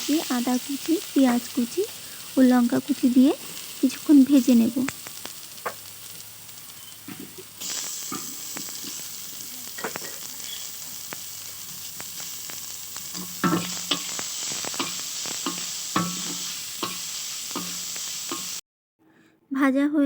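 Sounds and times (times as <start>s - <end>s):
food sizzling in hot oil: 0.0s - 18.6s
spatula scraping and knocking pan: 7.1s - 9.0s, 13.1s - 18.6s.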